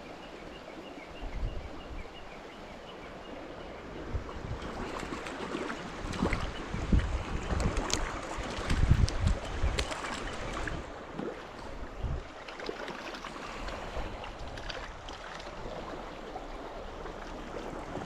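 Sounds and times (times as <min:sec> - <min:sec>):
shallow stream running: 0:00.0 - 0:18.0
wind bump on microphone: 0:04.0 - 0:05.1, 0:05.9 - 0:10.9, 0:11.8 - 0:12.3.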